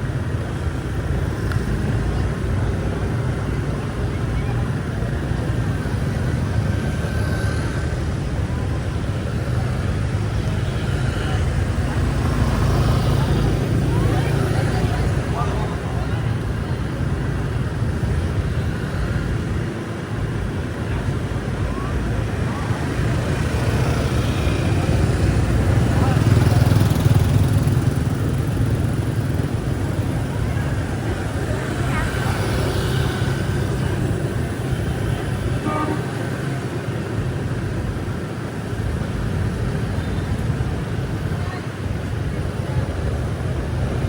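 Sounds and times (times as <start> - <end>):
low rumble of traffic: 0.0 - 44.0.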